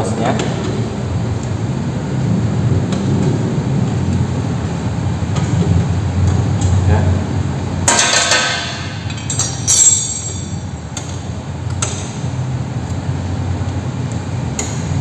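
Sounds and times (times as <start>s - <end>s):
low steady hum: 0.0s - 15.0s
metal spanners clinking: 7.9s - 10.9s.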